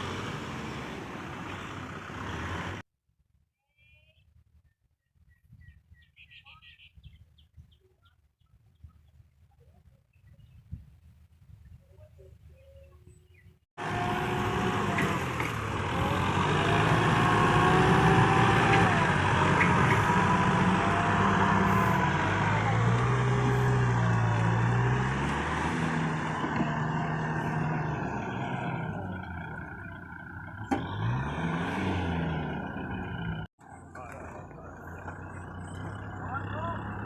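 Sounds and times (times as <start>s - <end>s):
tractor engine revving: 0.0s - 2.8s, 13.8s - 37.0s.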